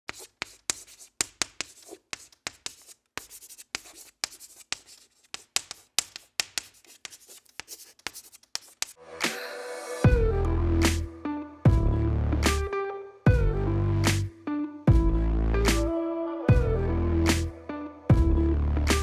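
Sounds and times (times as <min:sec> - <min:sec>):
quick scratching strokes: 0:00.1 - 0:09.4.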